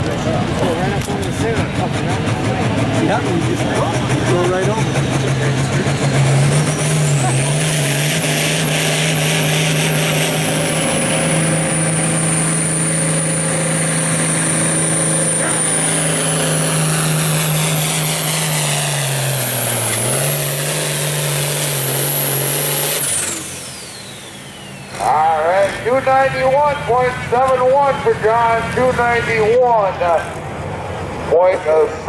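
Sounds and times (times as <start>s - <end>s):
diesel tractor engine at full throttle: 0.0s - 32.0s.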